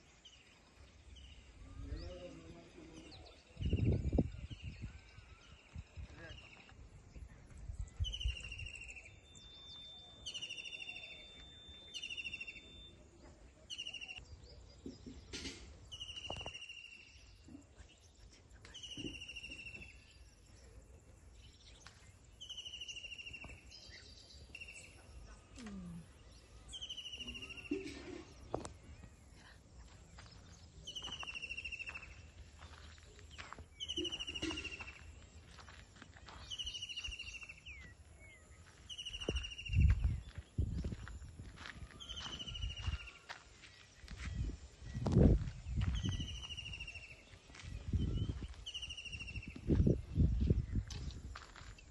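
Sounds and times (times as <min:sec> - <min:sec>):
bird calling: 0:33.8 - 0:35.1.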